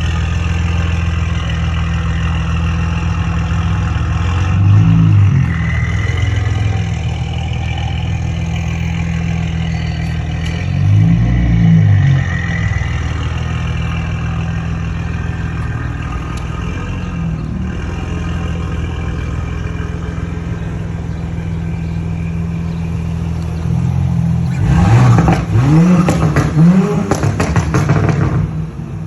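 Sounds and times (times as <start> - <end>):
car engine revving: 0.0 - 29.0
exhaust pops: 23.3 - 29.0.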